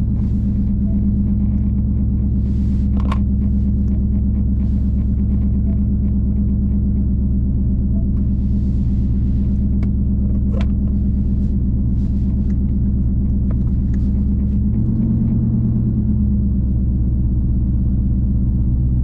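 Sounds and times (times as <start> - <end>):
car engine deep rumble: 0.0 - 19.0.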